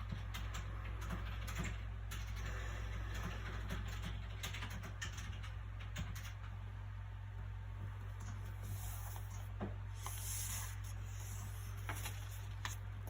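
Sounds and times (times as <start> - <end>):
low background hum: 0.0 - 13.0
soft paper rustle: 8.2 - 13.0
book pages crinkling: 8.7 - 13.0.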